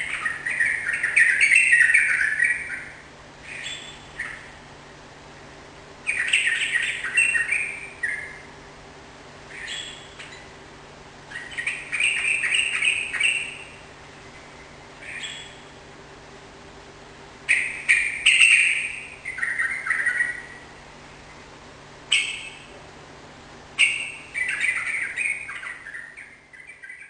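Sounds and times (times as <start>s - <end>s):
bird chirping song: 0.0s - 4.6s, 6.0s - 8.5s, 9.5s - 10.6s, 11.3s - 15.8s, 17.5s - 21.5s, 22.1s - 22.7s, 23.8s - 27.0s
faint steady hum: 0.0s - 27.0s.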